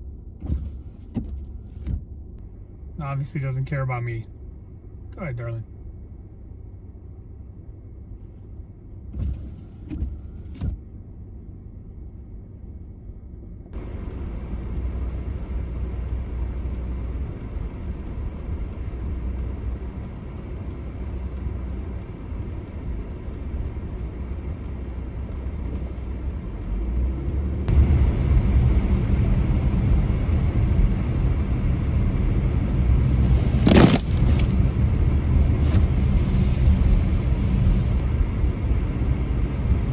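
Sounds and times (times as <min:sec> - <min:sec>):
road and engine rumble: 0:00.0 - 0:39.9
loud whoosh: 0:27.7 - 0:39.9.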